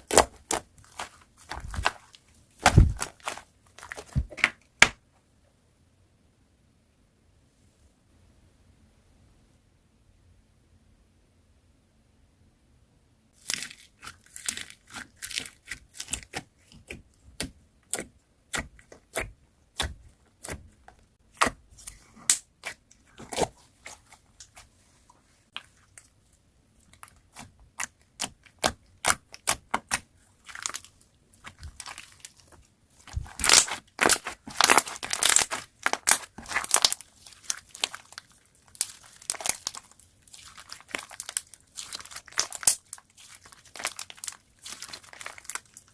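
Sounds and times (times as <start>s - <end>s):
slime crackling and popping: 0.0s - 5.0s, 26.9s - 45.9s.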